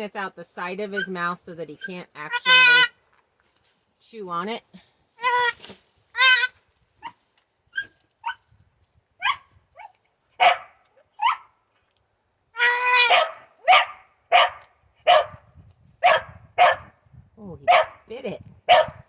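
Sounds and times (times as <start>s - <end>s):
baby goat bleating: 1.8s - 2.9s, 5.2s - 6.6s, 12.6s - 13.1s
dog barking: 9.2s - 9.5s, 10.4s - 11.4s, 13.0s - 15.4s, 16.0s - 17.0s, 17.7s - 18.0s, 18.7s - 19.0s.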